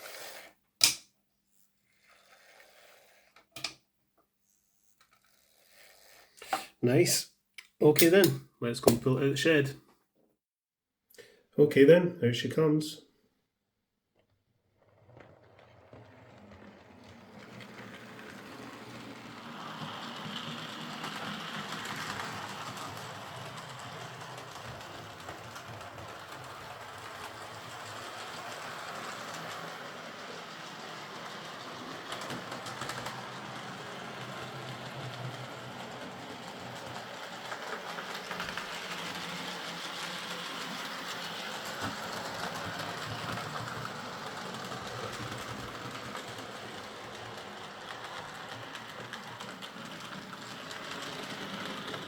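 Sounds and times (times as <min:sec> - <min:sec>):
model train motor whir: 0:01.5 - 0:03.7, 0:04.5 - 0:06.6, 0:14.9 - 0:52.0
model train wheel rattle: 0:15.1 - 0:52.0.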